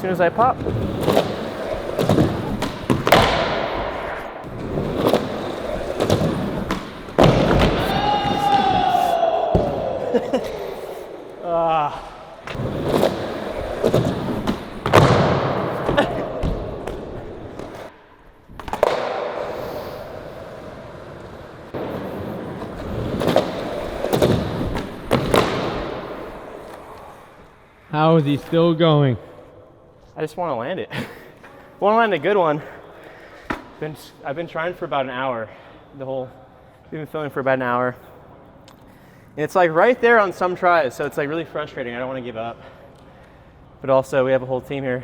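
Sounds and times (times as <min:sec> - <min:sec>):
skateboard rolling: 0:00.2 - 0:11.4, 0:12.0 - 0:27.7
skateboard landing thud: 0:00.6 - 0:10.6, 0:12.4 - 0:17.9, 0:18.5 - 0:20.8, 0:21.7 - 0:27.0.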